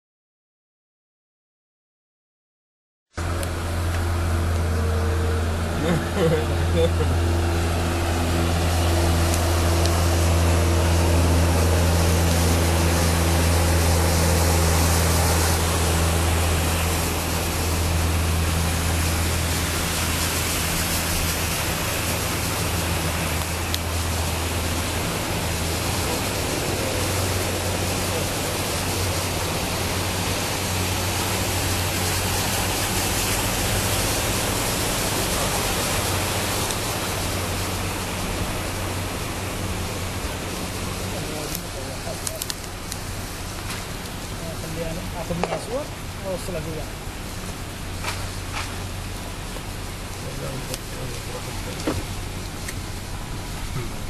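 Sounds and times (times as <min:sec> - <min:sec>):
vehicle engine humming: 0:03.1 - 0:54.0
heavy rain water rushing: 0:03.2 - 0:54.0.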